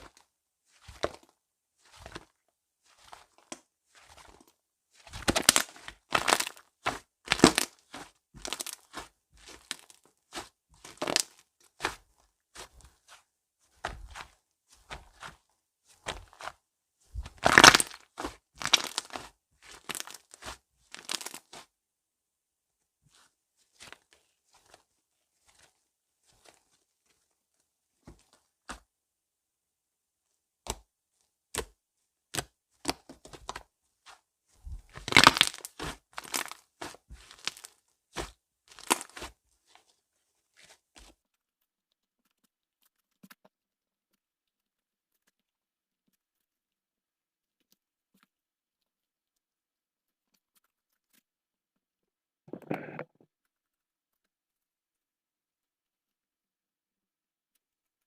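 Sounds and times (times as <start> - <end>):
slime crackling and popping: 5.0 - 12.0, 17.2 - 21.7, 34.9 - 39.3.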